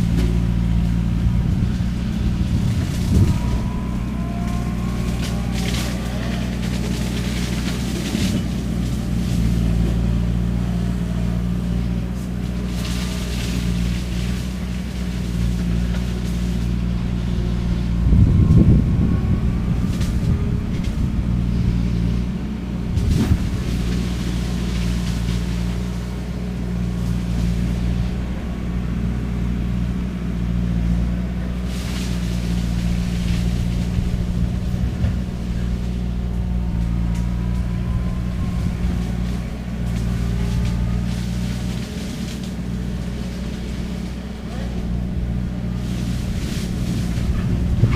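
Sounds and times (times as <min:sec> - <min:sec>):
shredder head cutting cane: 0:00.0 - 0:10.2, 0:31.4 - 0:47.9
skid steer engine under load: 0:00.0 - 0:47.9.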